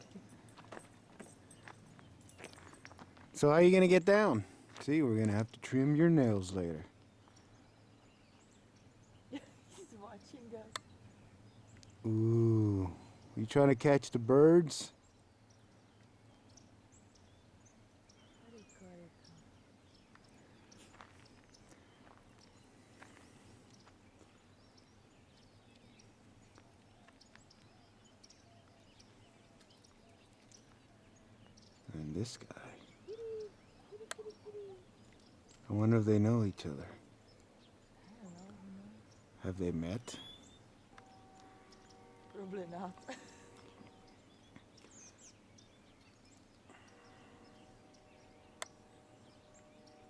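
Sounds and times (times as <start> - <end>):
low outdoor background hum: 0.0 - 50.0
small birds chirping: 0.0 - 50.0.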